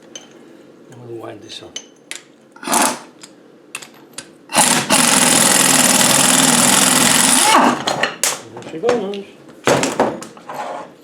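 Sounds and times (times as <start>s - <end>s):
air wrench running: 2.6s - 3.1s, 4.5s - 7.8s.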